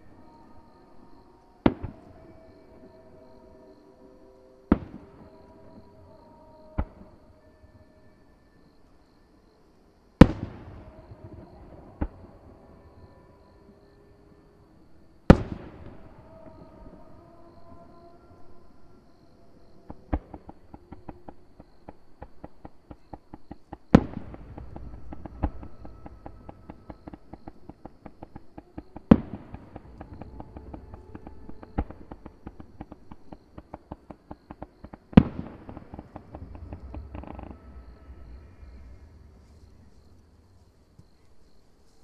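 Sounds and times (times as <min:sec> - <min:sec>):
firework crackle: 0:21.9 - 0:40.6
firework bangs: 0:22.2 - 0:40.0.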